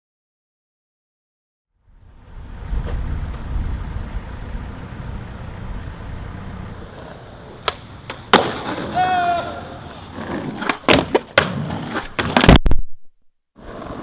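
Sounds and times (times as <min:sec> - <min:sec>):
car engine rumbling: 0:01.8 - 0:08.3.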